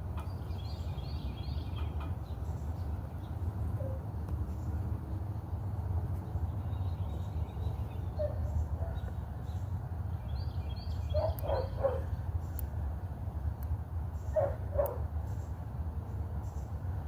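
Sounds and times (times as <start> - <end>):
birds chirping: 0.0 - 13.2, 14.0 - 17.0
short lower bird calls: 10.7 - 12.2.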